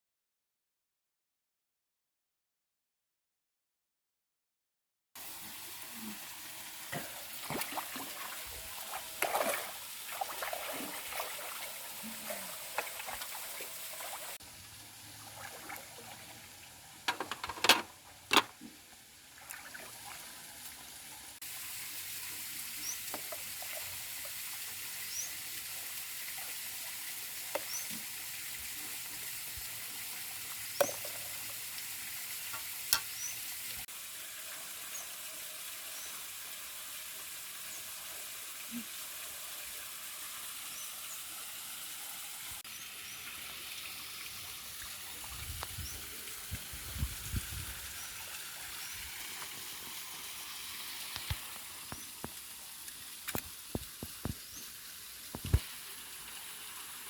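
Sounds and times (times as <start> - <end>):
utensil scraping and clinking: 17.1 - 18.5
food sizzling in a pan: 24.9 - 26.3, 30.8 - 39.2.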